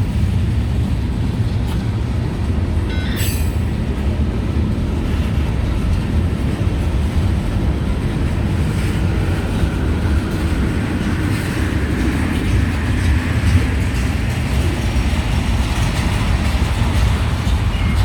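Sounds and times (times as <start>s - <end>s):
train wheels rumbling on rail: 0.0s - 18.0s
sharp metal clank: 2.9s - 3.8s.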